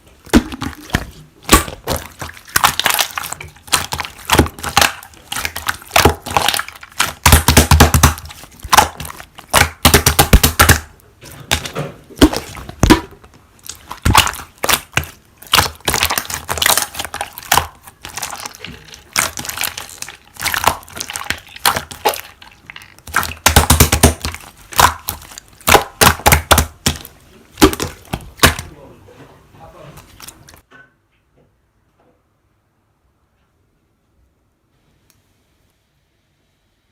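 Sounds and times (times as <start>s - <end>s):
slime crackling and popping: 0.3s - 28.7s.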